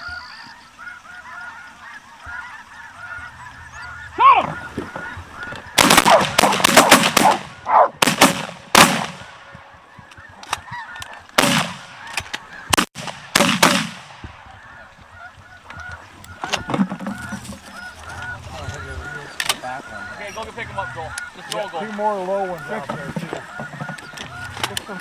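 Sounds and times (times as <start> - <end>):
geese honking: 0.0 - 25.0
shotguns firing: 4.4 - 9.5, 11.4 - 14.4.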